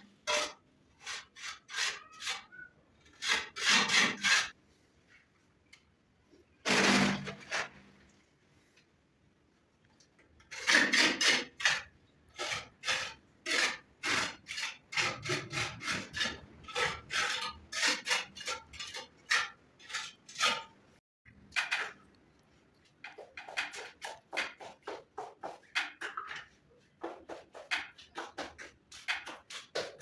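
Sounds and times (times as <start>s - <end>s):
hand tool rasping strokes: 10.5s - 20.7s.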